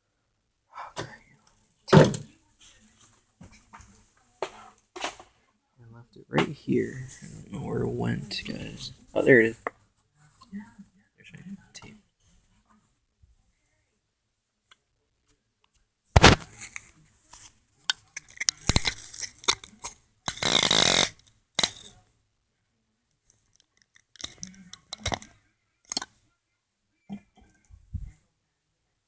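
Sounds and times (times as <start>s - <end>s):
handling clicks and rustles: 16.2s - 16.8s
sticky tape pulled off roll: 16.2s - 16.8s, 20.3s - 21.9s.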